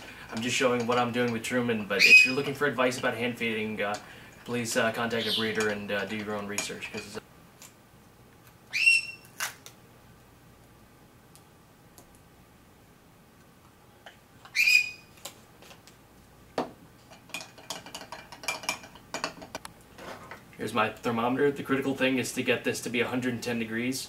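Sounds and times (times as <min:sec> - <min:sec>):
parrot calling: 0:01.9 - 0:02.5, 0:05.1 - 0:05.7, 0:08.7 - 0:09.4, 0:14.4 - 0:15.2.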